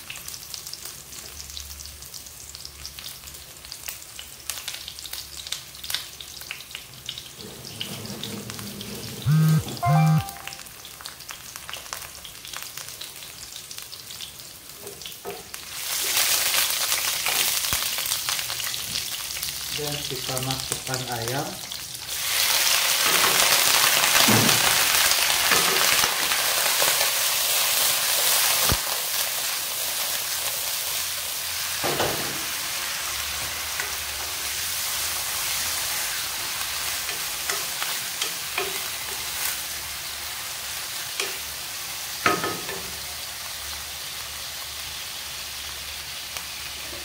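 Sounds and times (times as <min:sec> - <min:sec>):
chicken sizzling in hot oil: 0:00.0 - 0:47.0
spatula scraping a wok: 0:07.4 - 0:09.2.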